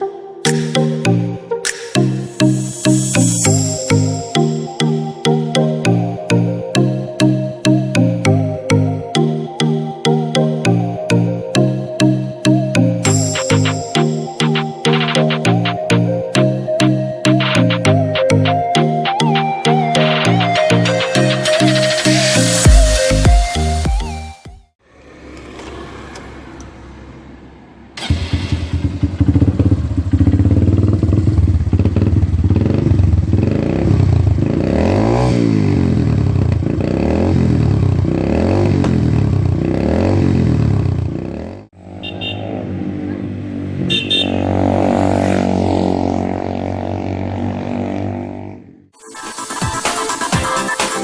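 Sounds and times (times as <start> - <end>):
motorcycle engine revving: 24.8 - 27.2, 28.0 - 49.0.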